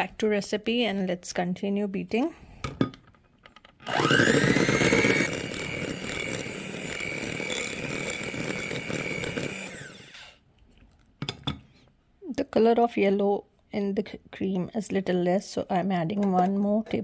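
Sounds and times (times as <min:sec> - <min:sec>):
electric beater whipping cream: 0:03.9 - 0:10.4.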